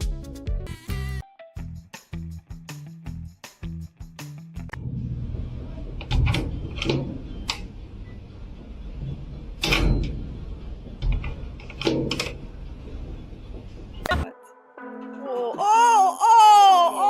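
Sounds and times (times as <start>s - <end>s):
low steady rumble: 4.7s - 14.3s.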